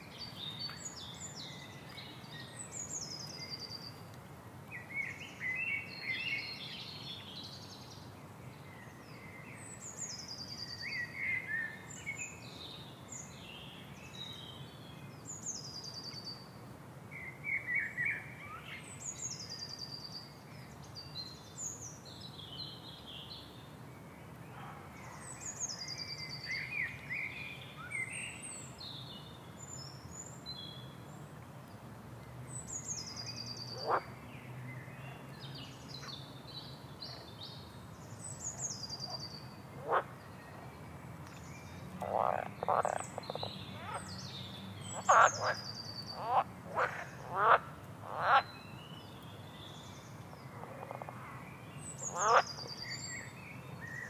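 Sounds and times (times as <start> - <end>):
low background noise: 0.0 - 54.0
wild birds calling and singing: 32.5 - 54.0.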